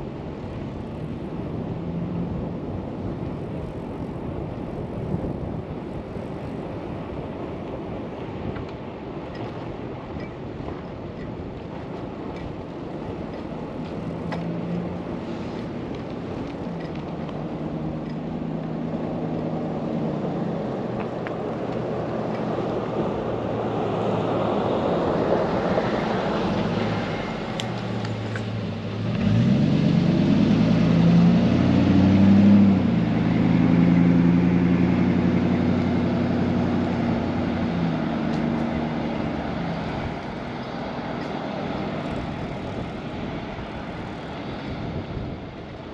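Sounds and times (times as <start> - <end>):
traffic hum and tyre noise: 0.0 - 45.9
loud vehicle passing: 21.9 - 45.4.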